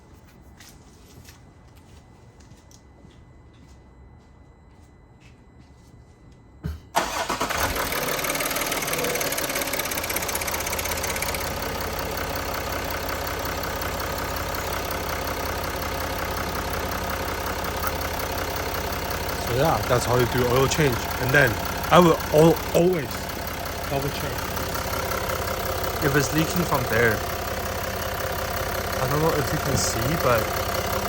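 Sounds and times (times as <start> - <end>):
diesel engine starting and idling: 6.9 - 31.0.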